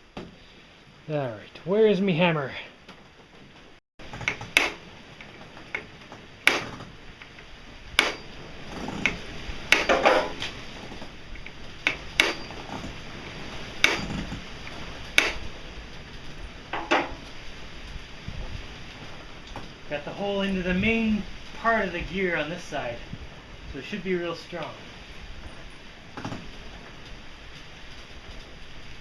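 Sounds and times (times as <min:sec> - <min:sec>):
hammer striking metal pin: 0:04.2 - 0:04.8, 0:05.8 - 0:06.8, 0:08.0 - 0:08.3, 0:09.0 - 0:10.4, 0:11.9 - 0:12.6, 0:13.8 - 0:14.3, 0:15.2 - 0:15.5.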